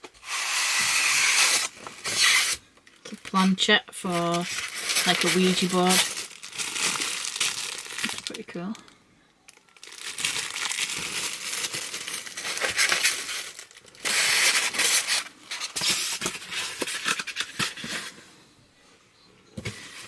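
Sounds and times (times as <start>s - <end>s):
packaging crinkling and rustling: 0.0s - 8.9s, 9.5s - 18.2s.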